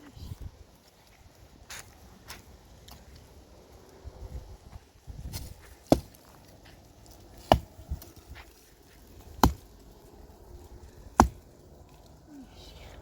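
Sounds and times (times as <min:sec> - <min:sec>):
heavy chopping blows: 0:05.2 - 0:06.2, 0:07.4 - 0:08.1, 0:09.2 - 0:09.7, 0:11.1 - 0:11.5.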